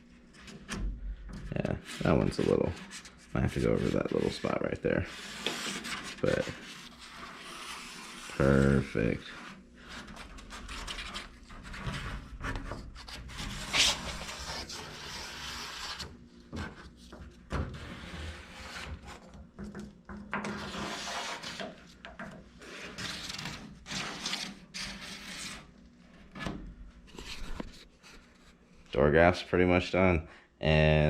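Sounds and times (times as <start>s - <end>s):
sandpaper scraping back and forth: 1.8s - 16.7s, 17.8s - 19.2s, 20.5s - 21.8s, 22.6s - 25.7s.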